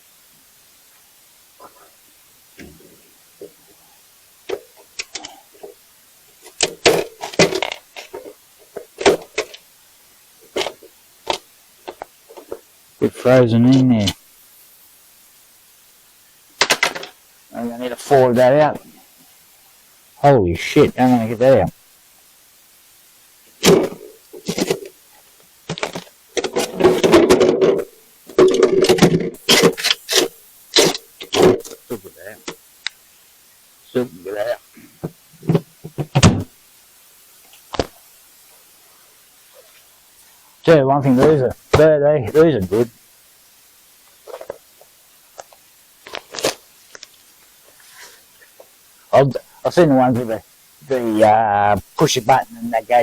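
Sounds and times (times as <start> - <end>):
irregular knocks and clunks: 25.7 - 30.0, 34.8 - 36.5.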